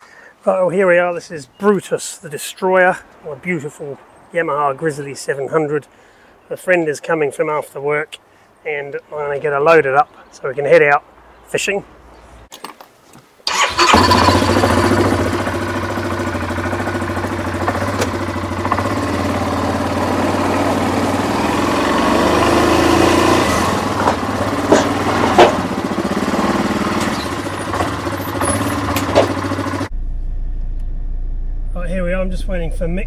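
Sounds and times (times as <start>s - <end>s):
atv engine idling: 13.5s - 30.0s
sharp knocks: 24.0s - 25.8s, 27.8s - 29.6s.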